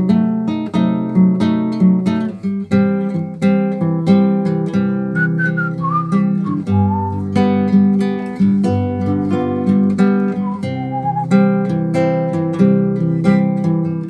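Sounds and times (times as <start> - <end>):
acoustic guitar strumming: 4.2 - 14.0
person whistling: 5.2 - 7.7, 8.8 - 11.6.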